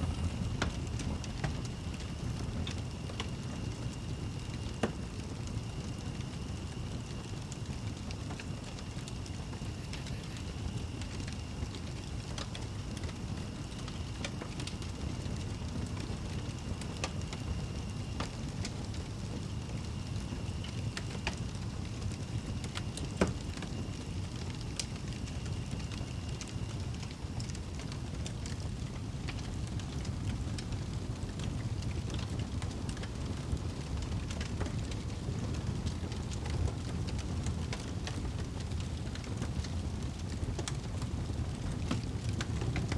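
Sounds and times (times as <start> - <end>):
low steady rumble: 0.0 - 29.5
fire popping: 0.0 - 42.9
wood fire crackling: 0.0 - 42.9.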